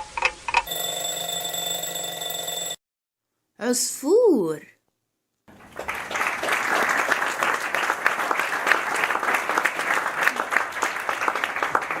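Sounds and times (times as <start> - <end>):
crowd applause: 5.5 - 12.0.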